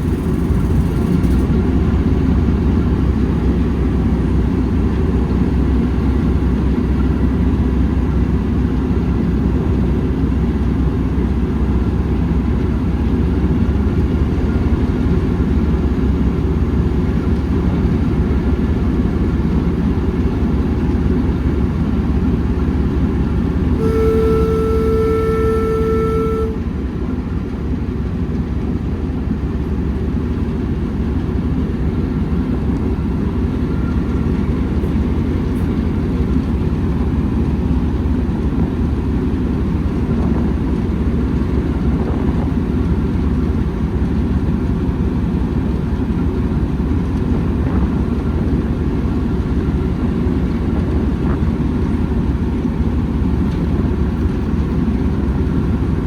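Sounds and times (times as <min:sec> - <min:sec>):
train rumbling: 0:00.0 - 0:56.0
train signal note: 0:23.8 - 0:26.6.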